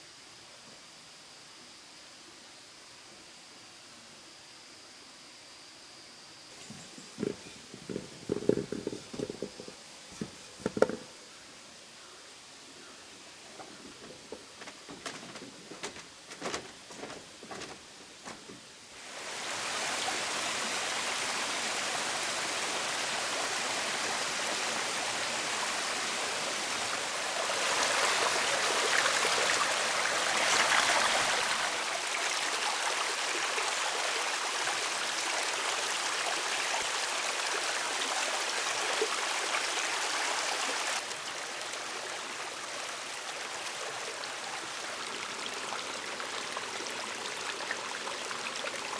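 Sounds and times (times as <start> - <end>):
knocks: 6.7 - 11.1.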